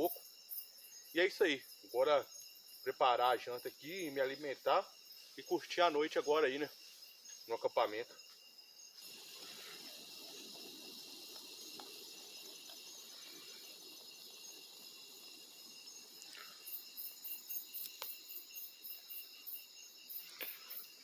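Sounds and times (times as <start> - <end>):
crickets trilling: 0.0 - 21.0
high pulsing insect call: 0.0 - 21.0
faint clicks: 17.8 - 18.2.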